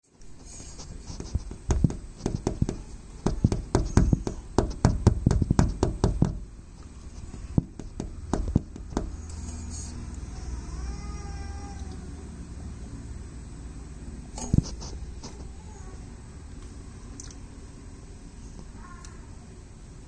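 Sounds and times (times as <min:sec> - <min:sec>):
bird pecking on window glass: 0:00.4 - 0:06.4.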